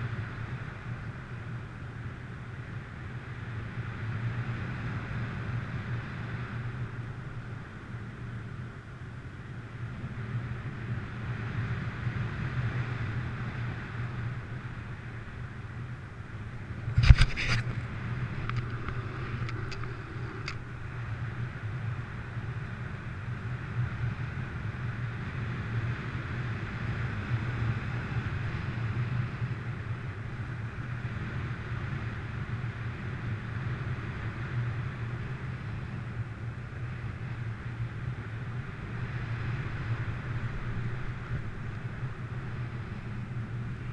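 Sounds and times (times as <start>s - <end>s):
wind buffeting microphone: 0.0s - 43.9s
faint clicks: 18.4s - 20.7s.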